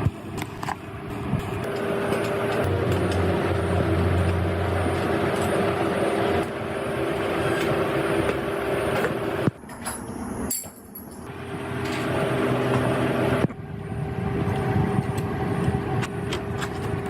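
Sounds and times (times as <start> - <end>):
road noise: 0.0 - 17.0
electric car motor whine: 1.5 - 9.5.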